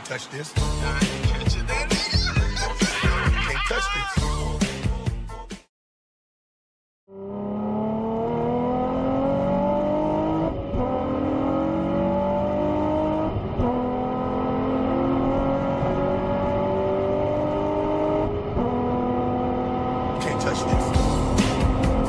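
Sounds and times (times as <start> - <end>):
car engine accelerating hard: 7.1 - 22.0.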